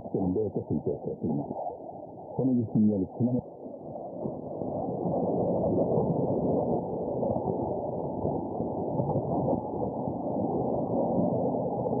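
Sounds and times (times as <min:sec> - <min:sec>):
radio hiss and static: 0:00.0 - 0:01.8, 0:02.4 - 0:03.5.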